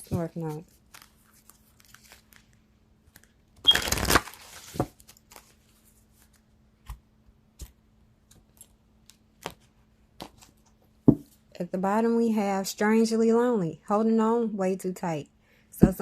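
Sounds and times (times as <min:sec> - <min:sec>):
cards being shuffled: 0:00.0 - 0:07.0.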